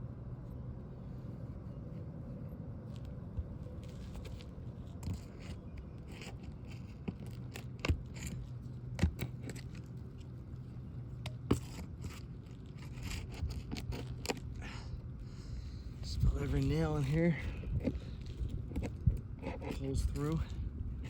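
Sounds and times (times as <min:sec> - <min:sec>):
metal tool scraping shingles: 0:11.3 - 0:14.5.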